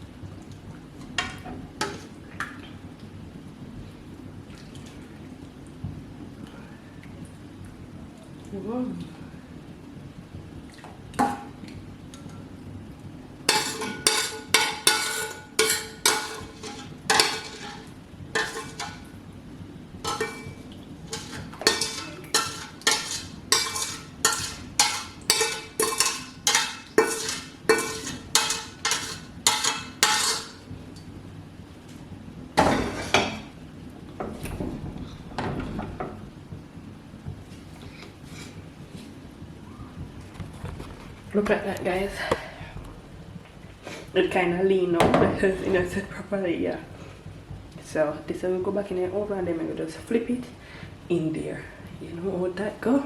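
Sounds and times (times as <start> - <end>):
metal spoon clinking on a pan: 13.5 - 19.1, 20.0 - 30.6
pan clattering: 13.5 - 19.2, 20.0 - 30.6.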